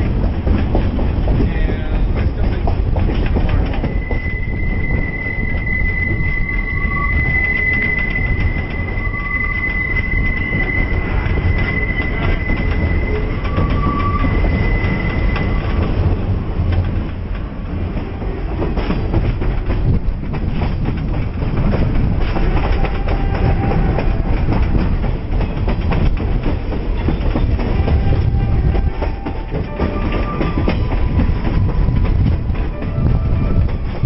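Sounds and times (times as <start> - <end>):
train wheels clickety-clack: 0.0 - 34.0
faint high wheel squeal: 3.7 - 15.9.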